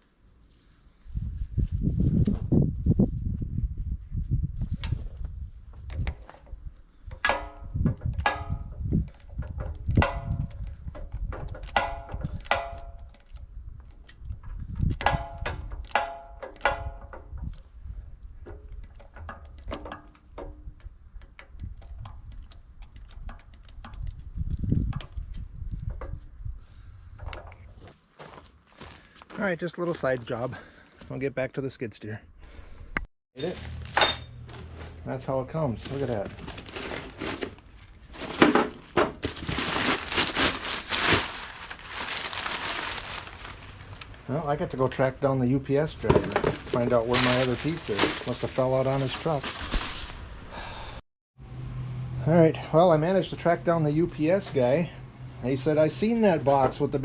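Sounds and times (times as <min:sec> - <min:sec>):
metal parts clanking: 0:33.4 - 0:34.9
packaging rustling and crinkling: 0:35.8 - 0:44.3, 0:46.0 - 0:50.3.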